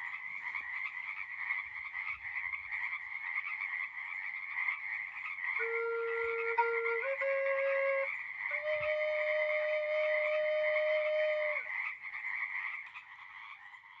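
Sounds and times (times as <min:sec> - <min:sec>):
frog chorus: 0:00.0 - 0:14.0.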